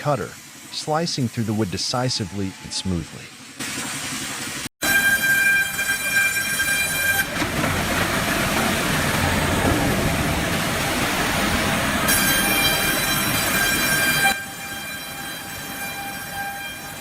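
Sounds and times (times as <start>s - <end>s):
circular saw blade whining: 4.8s - 7.4s, 11.6s - 17.0s.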